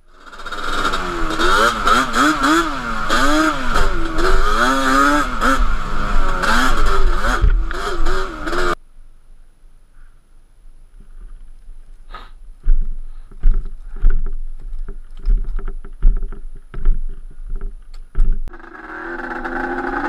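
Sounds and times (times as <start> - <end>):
two-stroke engine revving: 0.1 - 8.8, 18.5 - 20.0.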